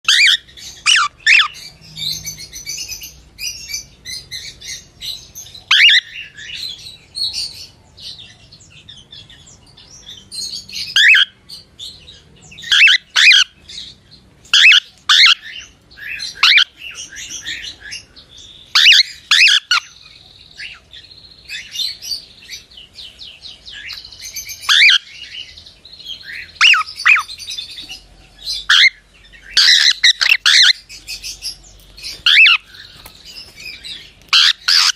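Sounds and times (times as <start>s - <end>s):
cockatiel chirping: 0.1s - 1.6s, 12.7s - 13.5s, 14.6s - 16.7s, 18.7s - 19.9s, 26.2s - 27.3s, 29.6s - 30.8s, 32.1s - 34.9s
bird chattering warbles: 32.1s - 33.7s, 34.3s - 34.9s.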